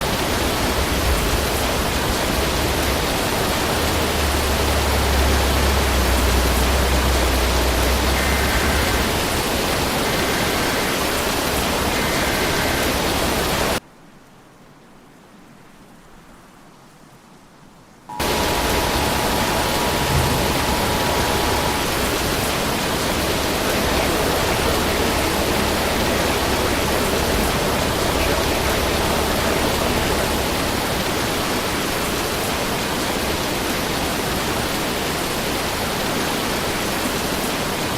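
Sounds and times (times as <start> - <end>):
storm wind and rain: 0.0 - 37.9
faint steady tone: 18.1 - 31.5.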